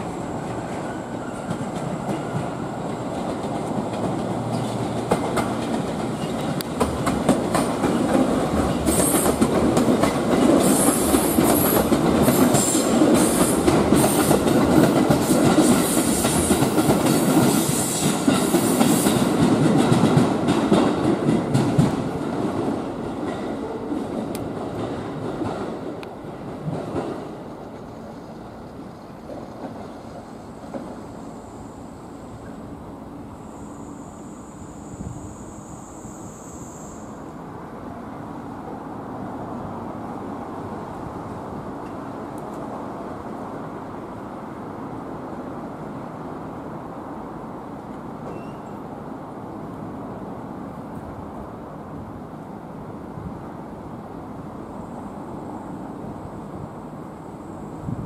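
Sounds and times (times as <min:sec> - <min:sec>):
train wheels clacking over joints: 0:01.4 - 0:22.0.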